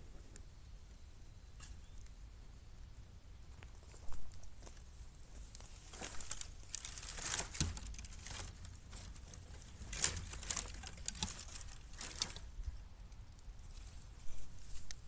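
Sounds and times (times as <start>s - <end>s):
bamboo fire crackling and popping: 3.6s - 15.0s.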